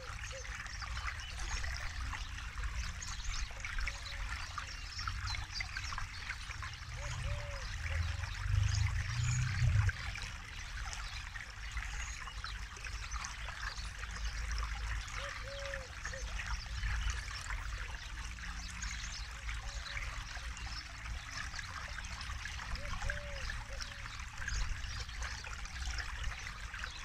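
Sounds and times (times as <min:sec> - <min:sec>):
deep water rumble: 0:00.0 - 0:27.0
river flowing: 0:00.0 - 0:27.0.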